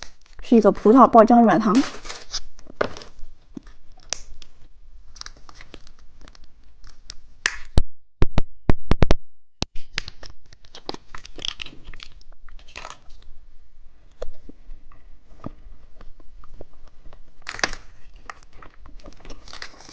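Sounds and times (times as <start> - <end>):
plastic wrapper crinkling and tearing: 1.7 - 7.6, 9.8 - 13.3, 16.5 - 19.9.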